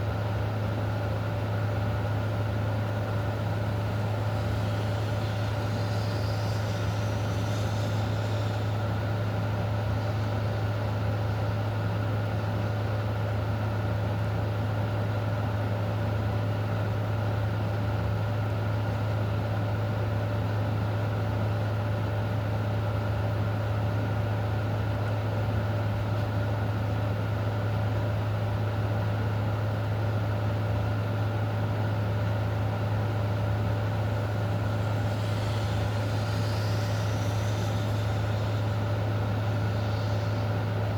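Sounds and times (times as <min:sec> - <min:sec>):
low mechanical hum: 0:00.0 - 0:40.9
steady rain hiss: 0:03.4 - 0:10.4, 0:33.3 - 0:40.9.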